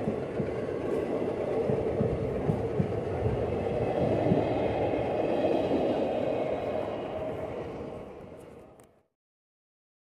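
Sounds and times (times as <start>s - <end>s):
wheels rumbling on rail: 0.0s - 9.1s
low wheel knocks: 1.6s - 4.6s.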